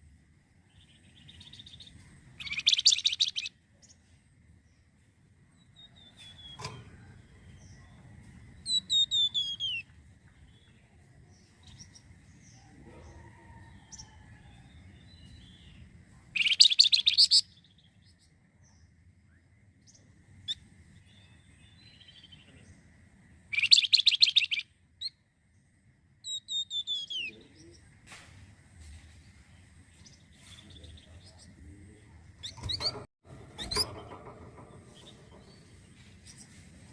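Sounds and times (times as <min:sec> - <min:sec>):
songbird rattling trill: 0:00.8 - 0:04.0, 0:08.6 - 0:09.9, 0:16.4 - 0:17.7, 0:23.5 - 0:25.2, 0:32.4 - 0:36.6
songbird whistled notes: 0:02.4 - 0:03.5, 0:08.6 - 0:09.9, 0:16.4 - 0:17.5, 0:23.5 - 0:24.6.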